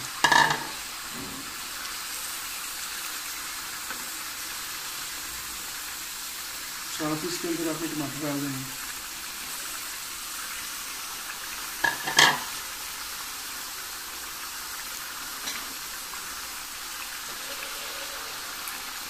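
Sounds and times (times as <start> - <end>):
meat and onions sizzling in a pan: 0.0 - 19.0.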